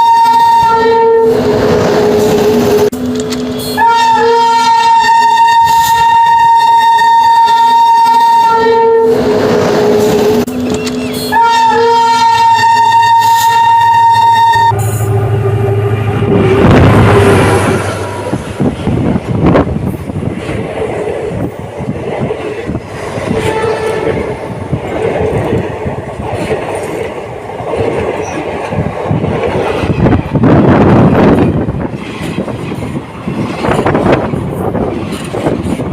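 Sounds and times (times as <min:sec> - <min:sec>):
train horn: 0:00.0 - 0:02.4, 0:03.6 - 0:10.2, 0:11.2 - 0:18.4, 0:23.3 - 0:24.4
train rumbling past: 0:00.0 - 0:35.9
train wheels clattering on rails: 0:18.2 - 0:35.9.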